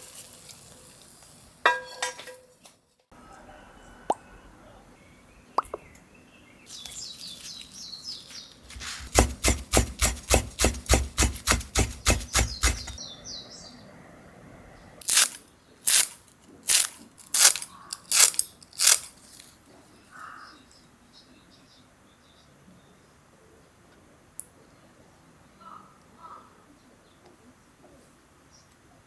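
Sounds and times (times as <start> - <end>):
knife chopping on cutting board: 8.7 - 13.0.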